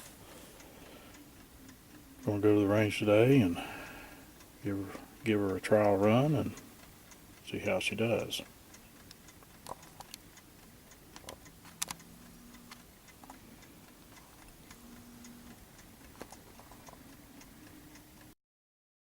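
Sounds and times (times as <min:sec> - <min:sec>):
small clicks and light taps: 0:05.5 - 0:18.3.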